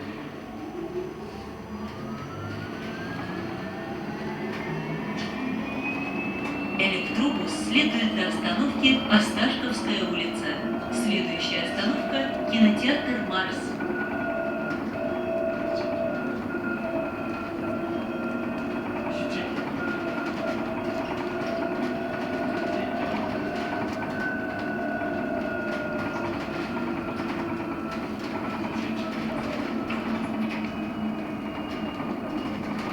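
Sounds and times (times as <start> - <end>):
road and rolling noise: 0.0 - 12.6.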